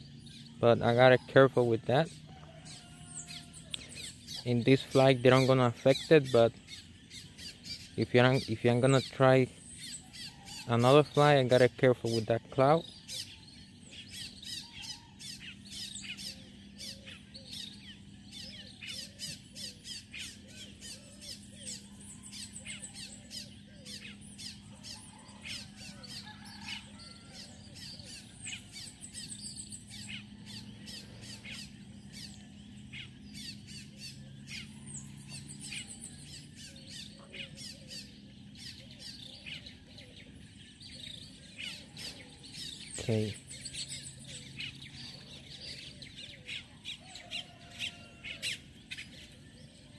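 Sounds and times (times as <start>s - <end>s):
birds chirping: 0.0s - 49.9s.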